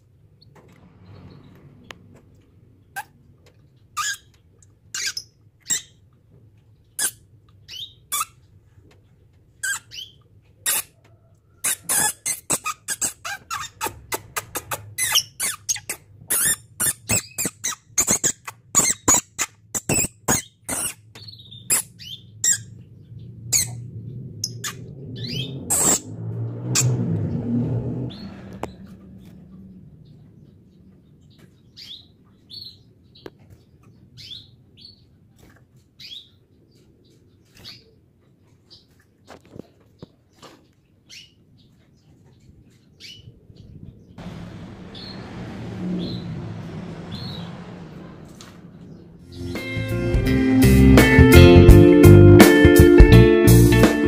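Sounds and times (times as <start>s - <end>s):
canary singing: 2.9s - 6.0s, 6.9s - 8.5s, 9.6s - 26.1s.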